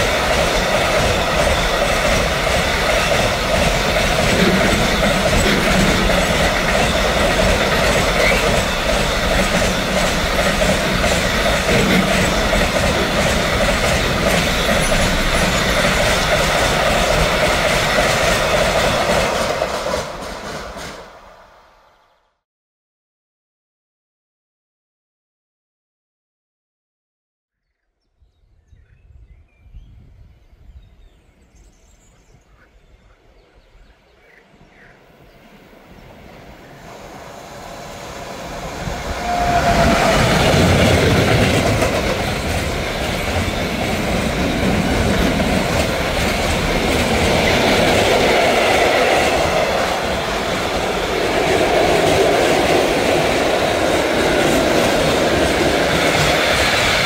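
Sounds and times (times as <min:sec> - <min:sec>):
wagons rushing by: 0:00.0 - 0:21.2, 0:36.9 - 0:57.0
wheels clattering over rail joints: 0:00.0 - 0:21.2, 0:39.1 - 0:57.0
train rumble: 0:00.0 - 0:21.8, 0:32.5 - 0:57.0.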